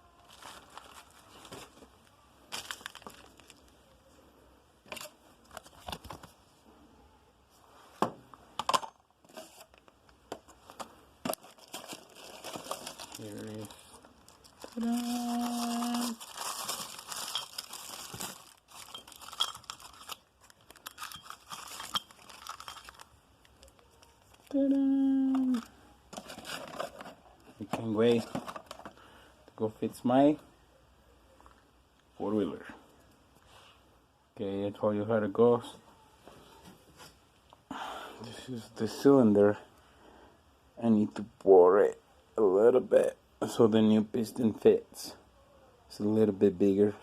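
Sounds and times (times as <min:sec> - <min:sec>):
packaging crinkling: 0:00.2 - 0:01.9, 0:02.5 - 0:03.7, 0:10.7 - 0:24.6.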